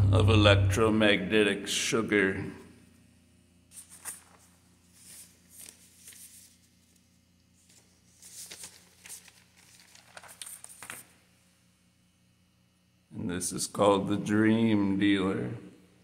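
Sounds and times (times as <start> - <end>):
low electrical hum: 0.0 - 16.0
faint rustling and crinkling: 3.7 - 11.3.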